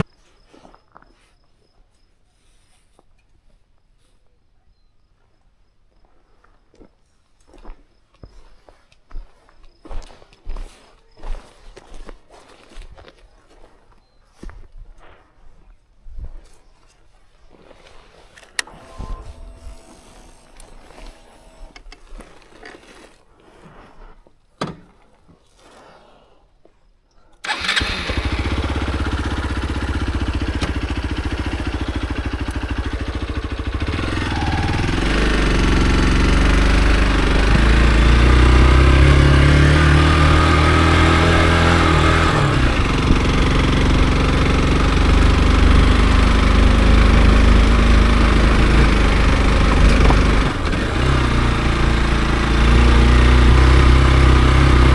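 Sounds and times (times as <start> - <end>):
motorcycle engine revving: 18.6 - 22.5, 27.4 - 54.9.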